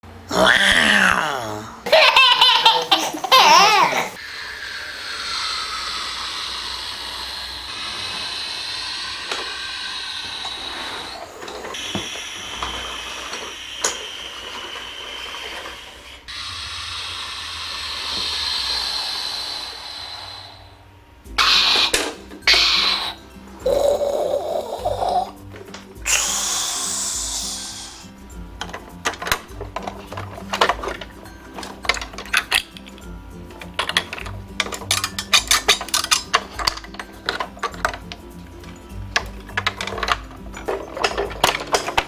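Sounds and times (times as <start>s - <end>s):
person laughing: 0.3s - 4.2s.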